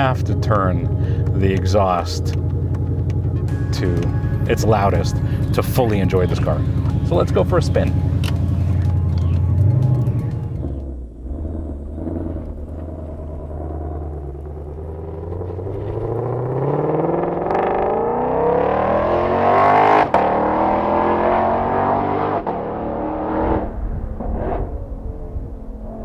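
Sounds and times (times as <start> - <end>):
car engine accelerating hard: 0.0 - 26.0.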